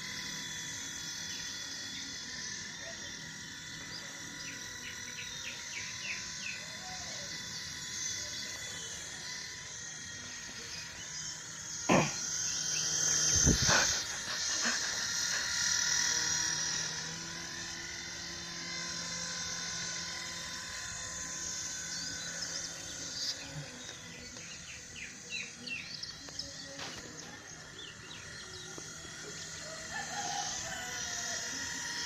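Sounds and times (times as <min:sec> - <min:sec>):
toy helicopter motor whirring: 0:00.0 - 0:32.0.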